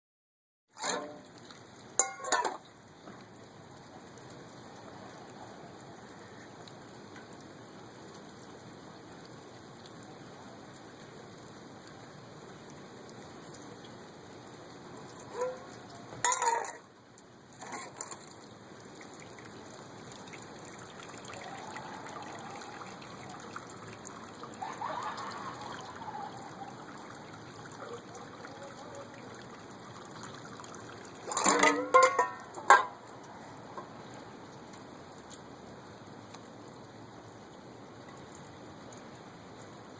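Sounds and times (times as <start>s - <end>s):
steady rain: 0.7s - 39.9s
water poured from dish: 0.8s - 2.7s, 15.0s - 16.9s, 17.6s - 34.0s.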